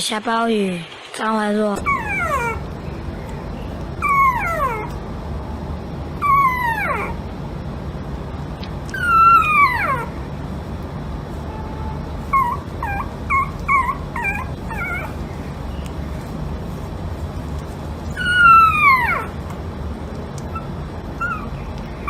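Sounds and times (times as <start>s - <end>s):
pet animal crying: 1.8s - 2.7s, 4.0s - 5.0s, 6.2s - 7.2s, 8.9s - 10.2s, 11.8s - 15.4s, 18.1s - 19.4s, 20.4s - 22.0s.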